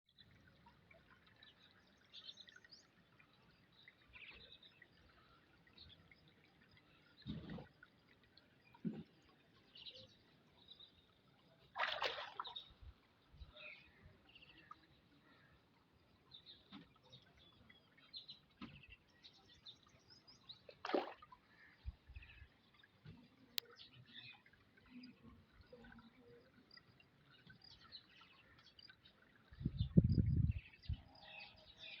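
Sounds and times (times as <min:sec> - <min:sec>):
water splash: 0:11.7 - 0:12.8, 0:20.7 - 0:21.8.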